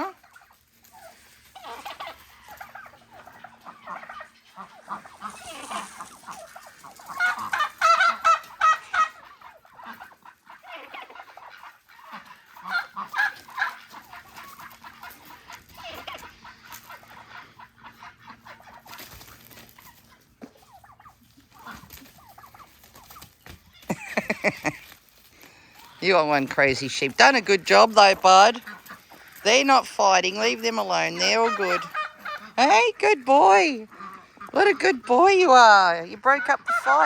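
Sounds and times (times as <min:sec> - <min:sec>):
rapid rattling turkey call: 0:00.0 - 0:24.9, 0:30.1 - 0:32.7
turkeys calling: 0:00.0 - 0:37.0.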